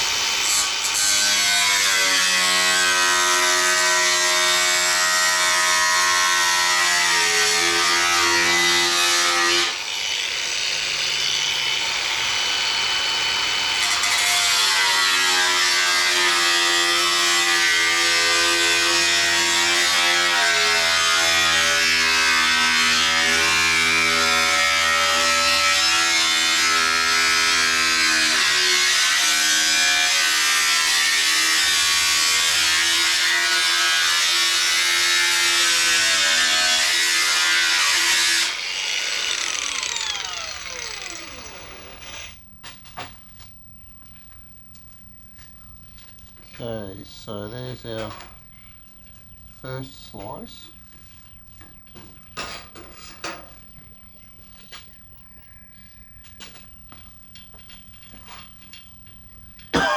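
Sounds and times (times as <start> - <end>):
power cutting tool whining: 0.0 - 42.5.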